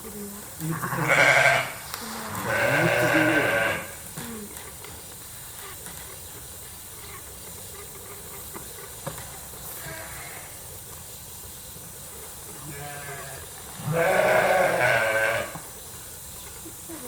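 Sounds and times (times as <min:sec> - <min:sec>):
steady hissing noise: 0:00.0 - 0:17.0
sheep bleat: 0:00.7 - 0:04.0, 0:12.6 - 0:15.6.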